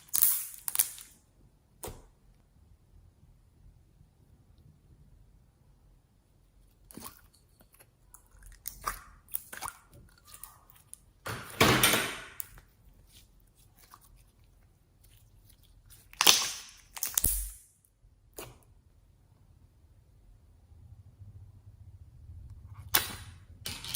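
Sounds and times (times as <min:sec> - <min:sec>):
slime squelching by hand: 0:06.4 - 0:11.2, 0:12.4 - 0:17.6.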